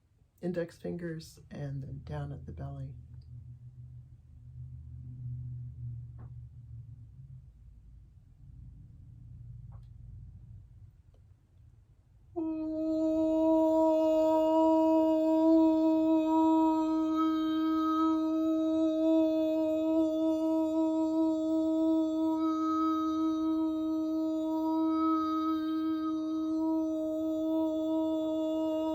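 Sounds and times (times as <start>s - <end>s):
person toning a long note: 12.4s - 28.9s.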